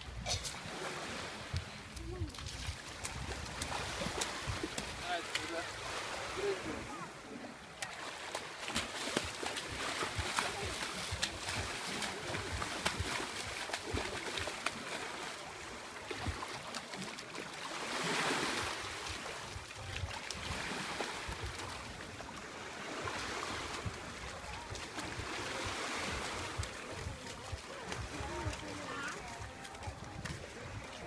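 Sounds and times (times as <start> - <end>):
sea waves washing at shore: 0.0 - 31.0
wind buffeting microphone: 1.4 - 5.6, 23.2 - 31.0.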